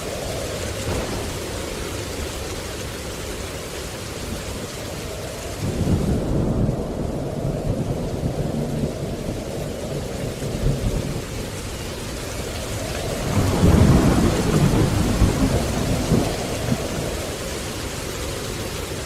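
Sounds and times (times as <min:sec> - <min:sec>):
low rumble of thunder: 0:00.0 - 0:19.0
steady rain: 0:00.0 - 0:19.0.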